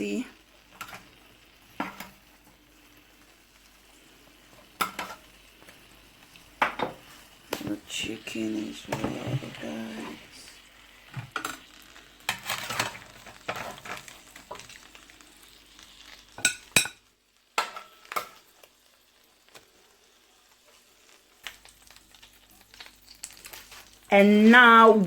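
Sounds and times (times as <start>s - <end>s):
chicken sizzling and crackling: 0.0s - 25.0s
kitchen utensils clicking and scraping: 0.7s - 2.2s, 4.5s - 5.3s, 11.2s - 14.8s, 16.4s - 18.5s.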